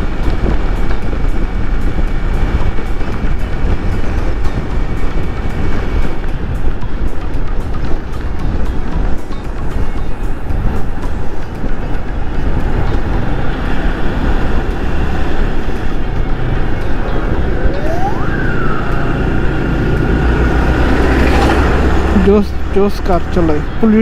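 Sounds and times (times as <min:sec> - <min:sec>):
motorcycle riding at speed: 0:00.0 - 0:24.0
wind rushing over microphone: 0:00.0 - 0:24.0
siren rising in pitch: 0:17.0 - 0:22.0.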